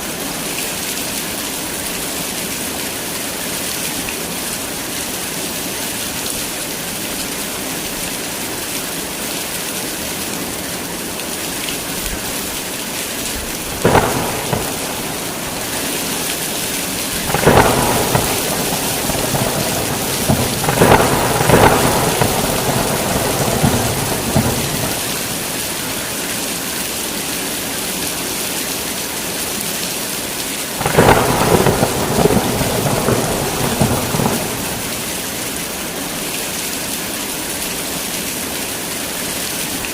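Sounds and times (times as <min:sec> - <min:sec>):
heavy rain falling: 0:00.0 - 0:39.9
thunder cracks and rumbling: 0:13.4 - 0:26.2, 0:30.8 - 0:35.6.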